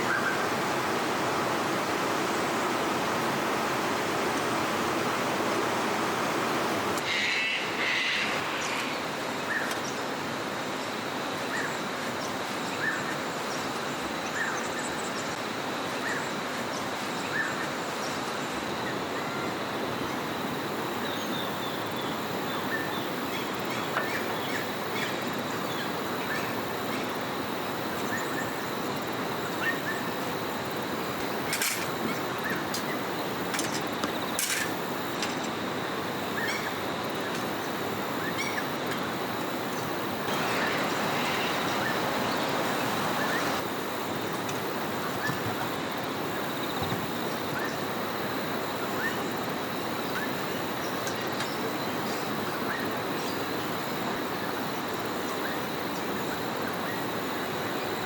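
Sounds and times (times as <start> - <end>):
small birds chirping: 39.7 - 43.6.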